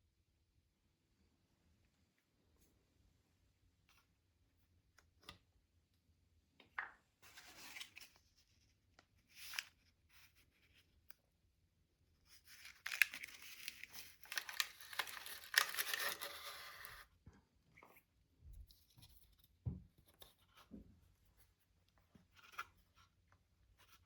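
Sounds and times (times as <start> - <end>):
packaging rustling and tearing: 12.5 - 17.0.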